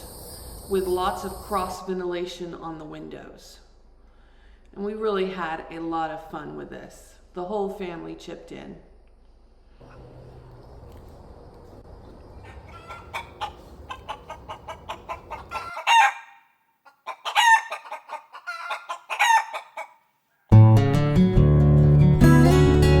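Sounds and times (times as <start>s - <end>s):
chicken pitched calls: 12.3s - 20.0s
chickens clucking: 12.3s - 20.0s
acoustic guitar music: 20.5s - 23.0s.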